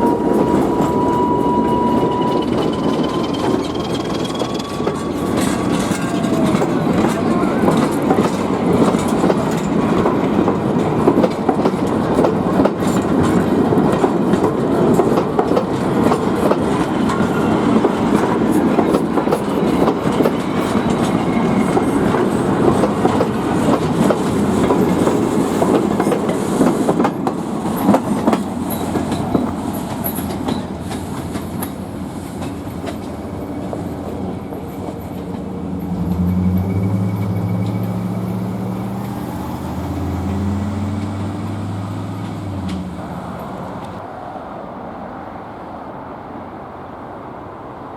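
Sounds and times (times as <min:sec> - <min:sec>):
train wheels clicking over rail joints: 0:00.0 - 0:44.0
road vehicle engine hum: 0:35.4 - 0:44.0.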